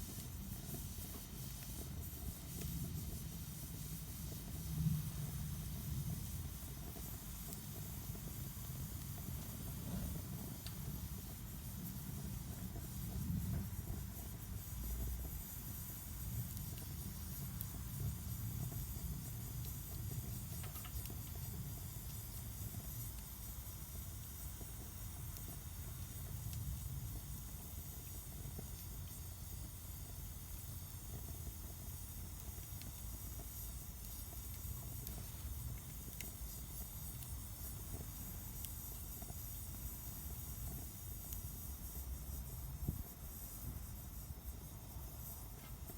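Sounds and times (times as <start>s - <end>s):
faint fire crackles: 0.0s - 45.9s
wood fire rumbling and hissing: 0.0s - 45.9s.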